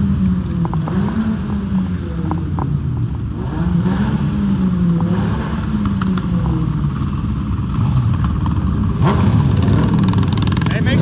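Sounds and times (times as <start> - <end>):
vehicle engines running at low revs: 0.0 - 11.0.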